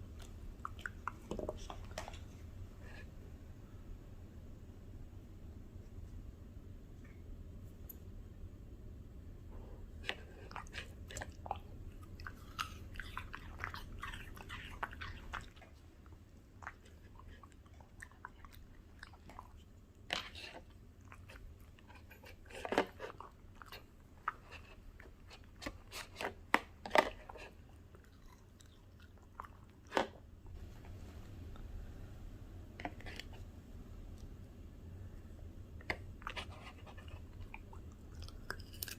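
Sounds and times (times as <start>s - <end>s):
dog chewing crunchy food: 10.4s - 19.6s.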